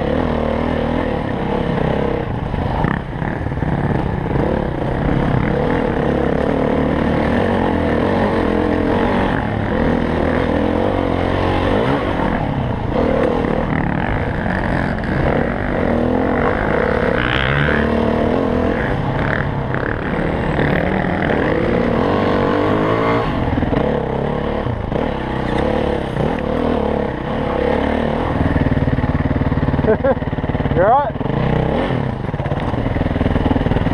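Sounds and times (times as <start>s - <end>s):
dirt bike engine revving: 0.0s - 33.9s.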